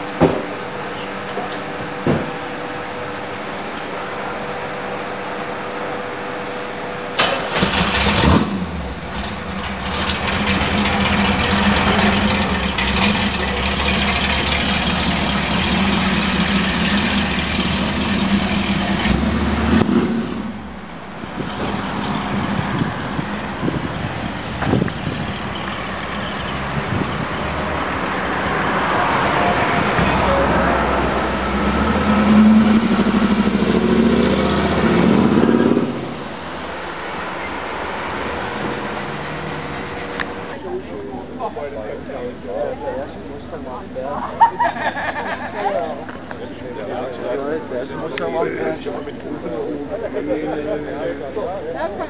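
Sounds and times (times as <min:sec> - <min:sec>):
car engine starting and idling: 0:04.2 - 0:42.5
car pulling away: 0:07.1 - 0:40.6
engine revving: 0:07.2 - 0:40.6.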